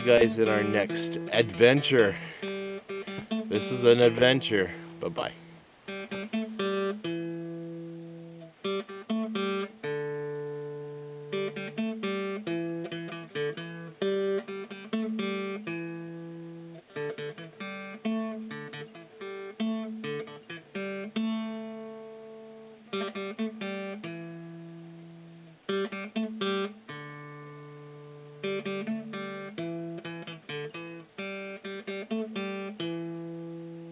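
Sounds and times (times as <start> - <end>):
acoustic guitar strumming: 0.0 - 33.9.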